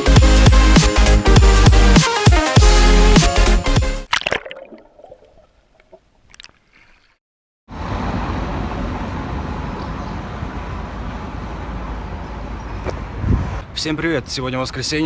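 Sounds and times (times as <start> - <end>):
music: 0.0 - 4.1
rushing outdoor noise: 7.7 - 15.0.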